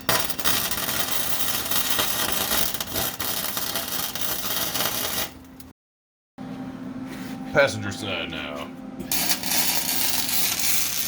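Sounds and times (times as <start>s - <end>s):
welder arc crackling: 9.1s - 11.0s.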